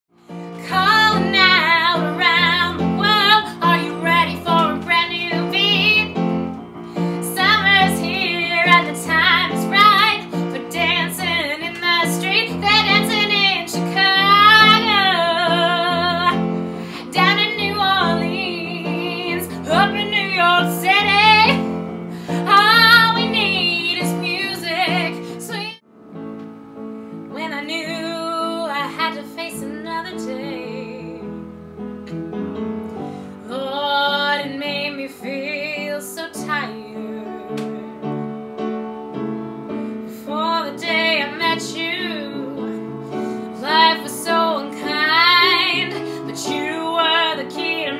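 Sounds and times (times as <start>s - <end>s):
keyboard accompaniment: 0.2s - 47.9s
woman singing with vibrato: 0.5s - 6.3s, 7.0s - 25.8s, 27.3s - 31.4s, 33.4s - 38.0s, 40.2s - 47.9s.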